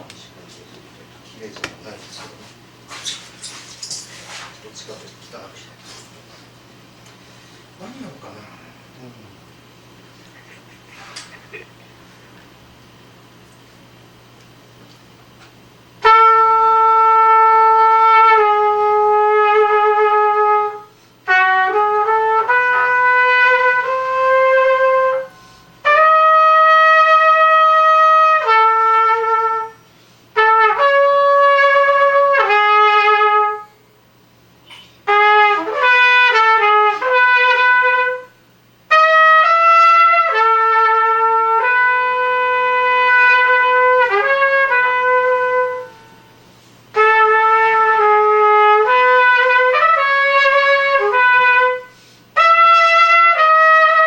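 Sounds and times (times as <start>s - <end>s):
solo trumpet: 16.0s - 33.8s, 35.0s - 54.0s.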